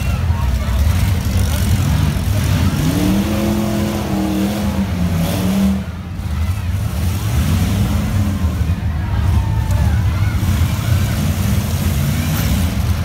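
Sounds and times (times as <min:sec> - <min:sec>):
car engines rumbling: 0:00.0 - 0:13.0
engine revving: 0:00.7 - 0:08.7.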